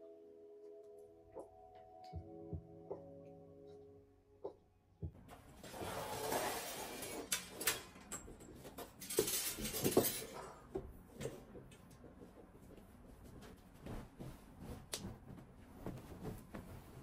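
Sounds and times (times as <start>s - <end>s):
dishes and cutlery clinking: 8.8s - 10.7s.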